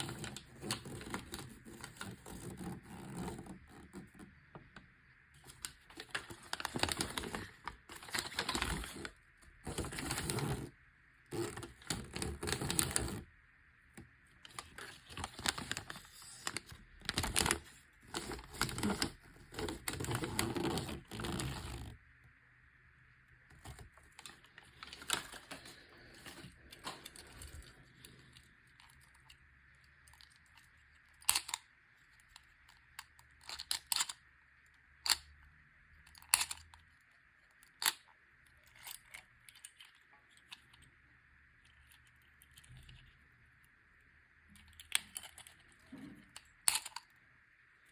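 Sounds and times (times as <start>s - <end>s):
packaging tearing and crinkling: 5.4s - 10.7s, 11.3s - 13.2s, 14.5s - 22.0s.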